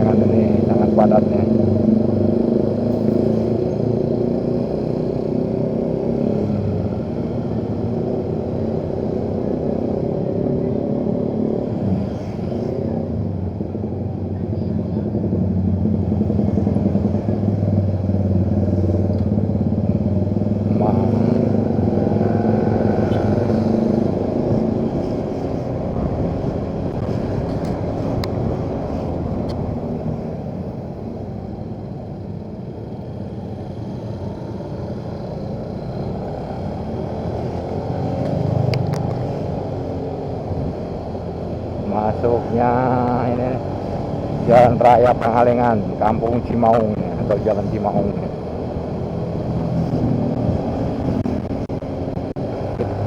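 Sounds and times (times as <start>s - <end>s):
road and traffic noise: 0.0s - 53.0s
motorcycle engine running: 12.9s - 53.0s.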